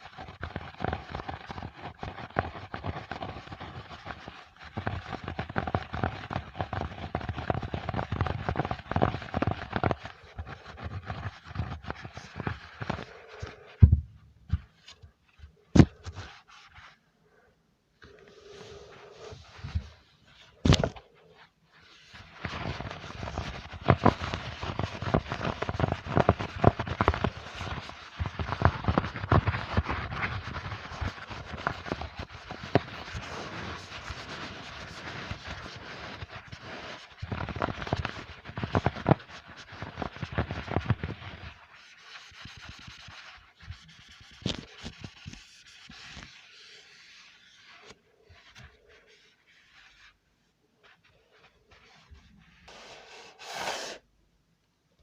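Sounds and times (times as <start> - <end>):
crackling and scratching clicks: 0.0 - 13.8, 22.0 - 46.5.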